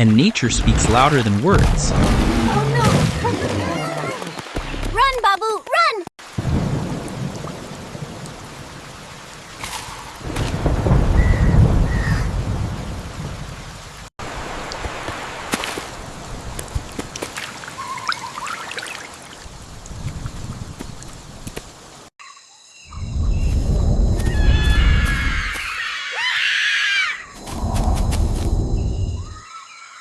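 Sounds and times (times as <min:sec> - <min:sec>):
rain falling: 0:00.0 - 0:22.1
thunder rumbling: 0:06.3 - 0:14.6, 0:23.0 - 0:25.4, 0:27.3 - 0:29.4.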